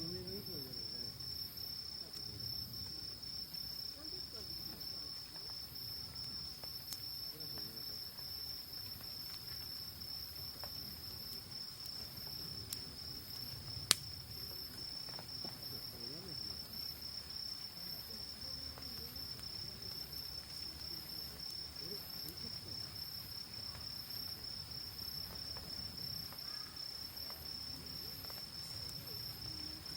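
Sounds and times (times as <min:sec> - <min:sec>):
campfire crackling: 0:00.0 - 0:29.9
insect chirping in pulses: 0:00.0 - 0:29.9
sharp fire crack: 0:04.4 - 0:29.9.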